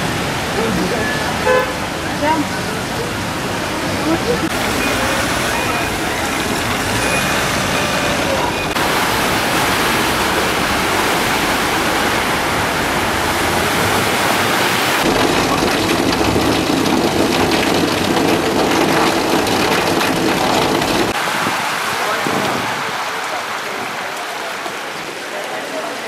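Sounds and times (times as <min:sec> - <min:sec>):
rain splashing on wet pavement: 0:00.0 - 0:26.0
vehicles driving through water: 0:00.0 - 0:26.0
vehicle engines running: 0:00.5 - 0:14.4.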